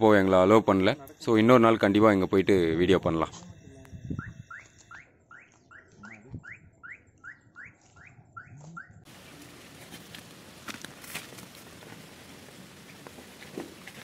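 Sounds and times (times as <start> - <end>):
faint outdoor hiss: 9.1 - 14.0.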